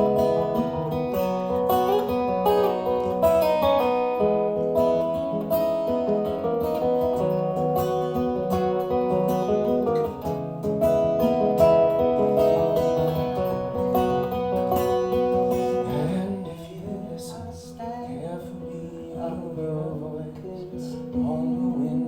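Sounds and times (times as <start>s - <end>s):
strummed acoustic guitar: 0.0s - 22.0s.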